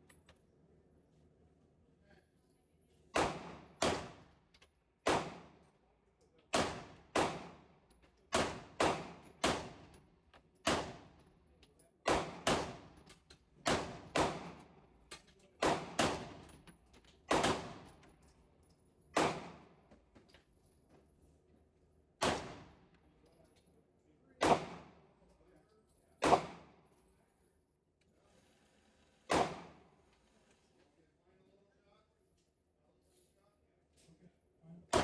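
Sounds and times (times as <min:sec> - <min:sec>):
gunshots with echo: 0:17.3 - 0:17.8, 0:24.4 - 0:24.9, 0:26.2 - 0:26.7, 0:29.3 - 0:29.8.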